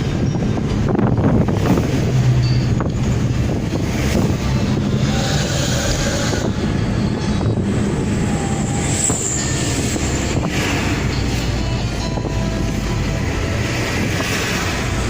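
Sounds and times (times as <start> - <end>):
van exhaust drone: 0.0 - 15.0.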